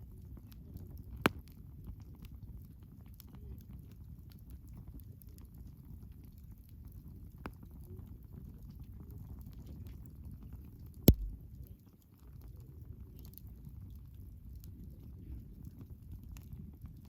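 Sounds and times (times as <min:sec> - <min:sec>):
loud sharp fire pop: 0:11.1 - 0:11.4.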